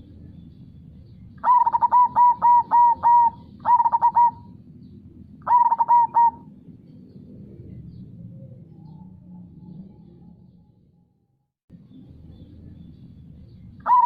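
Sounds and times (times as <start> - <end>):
dove cooing: 1.4 - 4.6, 5.4 - 6.6.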